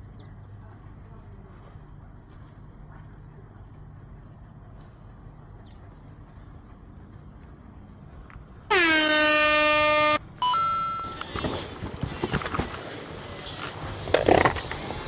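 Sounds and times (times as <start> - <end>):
loud horn blast: 8.7 - 11.2
two-step electronic tone: 8.7 - 11.3.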